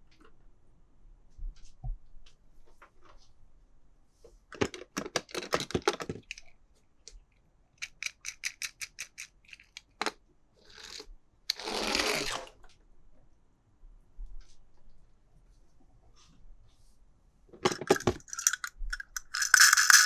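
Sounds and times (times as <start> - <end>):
packaging rustling: 17.8 - 20.0.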